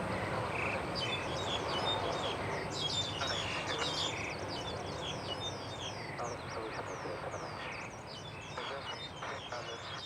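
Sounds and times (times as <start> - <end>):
steady background noise: 0.0 - 10.0
birds chirping: 0.2 - 10.0.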